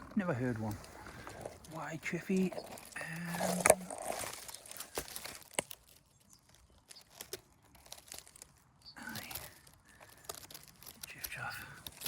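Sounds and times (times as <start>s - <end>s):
undergrowth rustling and crackling: 0.0s - 12.0s
twigs snapping: 0.8s - 12.0s.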